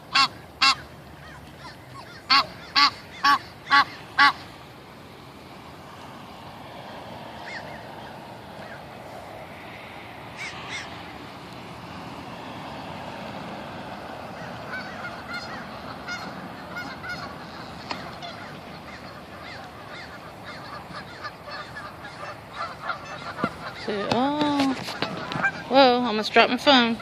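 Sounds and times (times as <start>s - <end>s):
geese honking: 0.0s - 4.6s, 7.4s - 9.0s, 10.3s - 11.2s, 13.4s - 27.0s.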